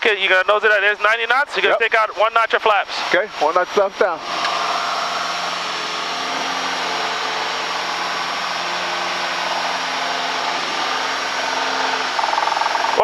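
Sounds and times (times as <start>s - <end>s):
airplane engine and propeller drone: 3.8s - 13.0s.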